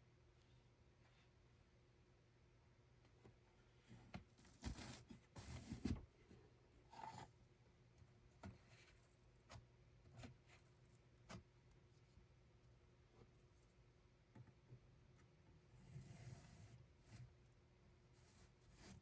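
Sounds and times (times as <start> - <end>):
faint rustling and scraping: 3.1 - 13.9, 15.7 - 19.0.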